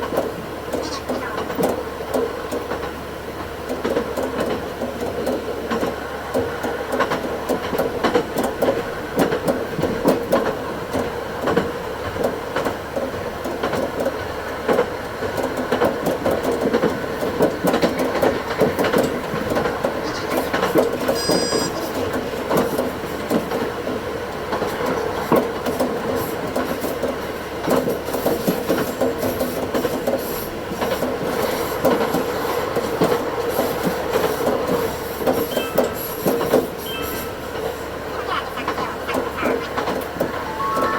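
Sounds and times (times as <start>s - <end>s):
railcar engine drone: 0.0s - 40.9s
wheels clicking over rails: 0.0s - 40.9s
high wheel squeal: 20.0s - 22.1s, 34.3s - 40.9s.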